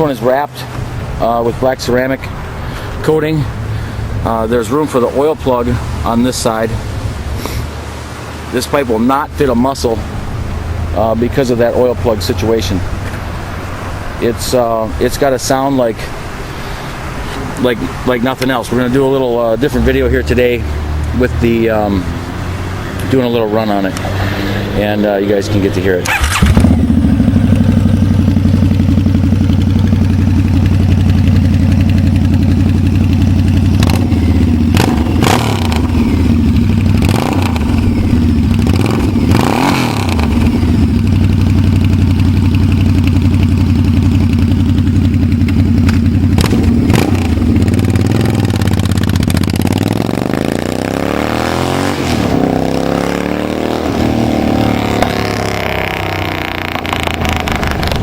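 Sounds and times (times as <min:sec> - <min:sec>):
motorcycle engine low rumble: 0:00.0 - 0:07.3, 0:08.9 - 0:58.0
short sharp exhaust sounds: 0:23.0 - 0:28.6.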